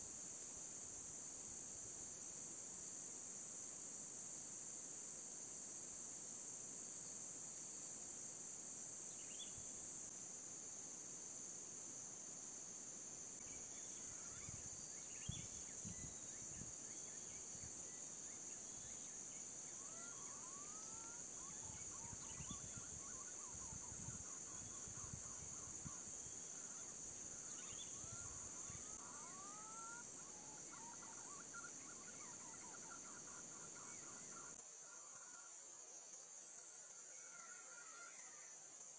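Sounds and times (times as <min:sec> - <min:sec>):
high insect drone: 0:00.0 - 0:38.9
faint rising whistled bird calls: 0:26.8 - 0:35.5.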